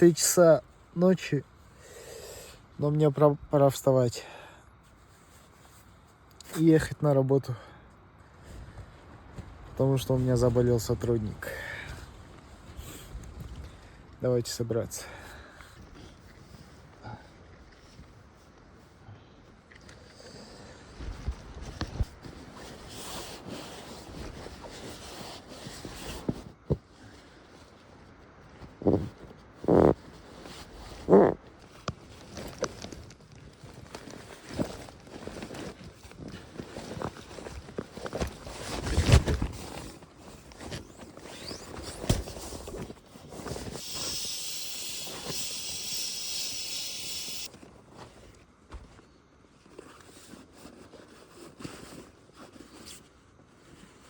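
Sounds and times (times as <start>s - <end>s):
camping gear rustling: 4.7s - 6.6s, 8.0s - 14.3s, 15.0s - 54.0s
steady hiss: 43.4s - 47.5s.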